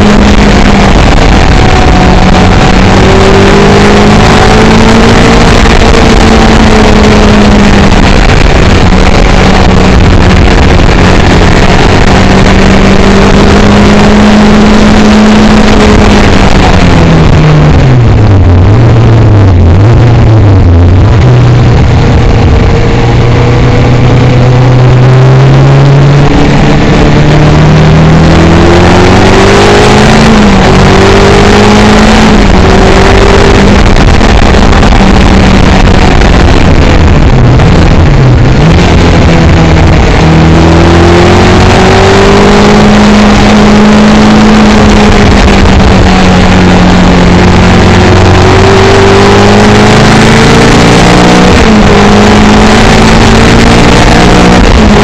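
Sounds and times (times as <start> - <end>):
sports car engine at full throttle: 0.0 - 55.0
wind noise rushing: 0.0 - 55.0.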